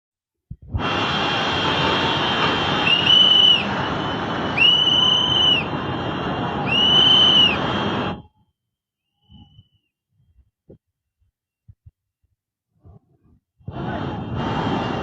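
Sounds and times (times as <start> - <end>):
shrill whistle blasts: 1.9 - 5.7, 6.6 - 10.0.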